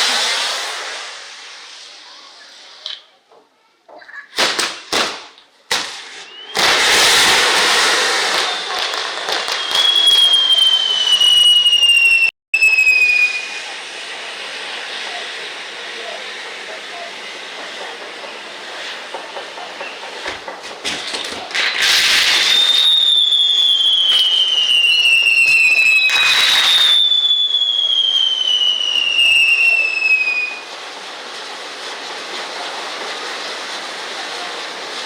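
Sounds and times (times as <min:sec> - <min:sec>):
descending firework whistles: 0:00.0 - 0:03.1, 0:04.3 - 0:35.0
fireworks crackling and popping: 0:00.0 - 0:03.3, 0:04.0 - 0:35.0
fireworks rushing hiss: 0:00.0 - 0:03.3, 0:04.3 - 0:35.0.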